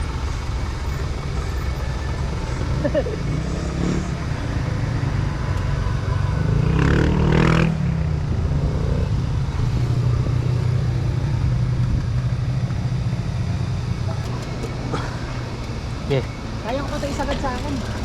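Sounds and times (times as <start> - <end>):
motor vehicle passing: 0.0 - 18.0
wind rumble on microphone: 4.3 - 14.1.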